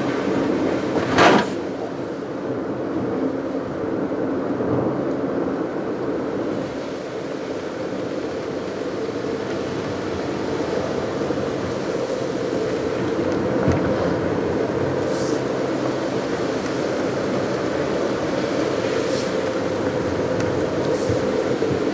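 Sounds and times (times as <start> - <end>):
car engine: 0.0 - 3.0, 6.1 - 21.9
road noise inside car: 0.0 - 21.9.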